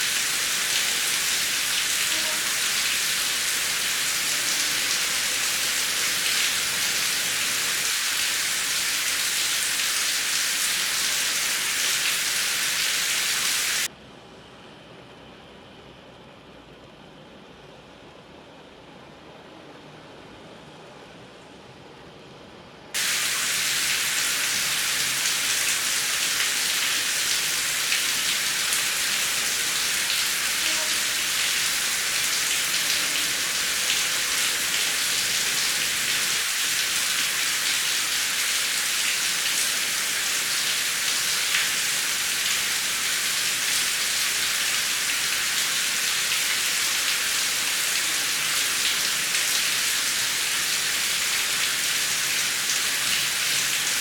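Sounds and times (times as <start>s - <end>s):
heavy rain falling: 0.0s - 13.9s, 23.0s - 54.0s.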